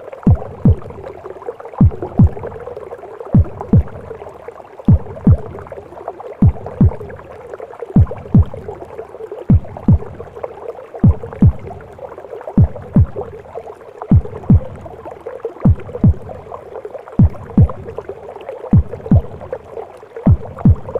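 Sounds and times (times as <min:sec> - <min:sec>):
heartbeat thumps: 0:00.2 - 0:01.2, 0:01.8 - 0:02.7, 0:03.3 - 0:04.2, 0:04.9 - 0:05.8, 0:06.4 - 0:07.3, 0:08.0 - 0:08.8, 0:09.4 - 0:10.4, 0:11.0 - 0:12.0, 0:12.6 - 0:13.4, 0:14.1 - 0:16.6, 0:17.2 - 0:18.1, 0:18.7 - 0:20.9.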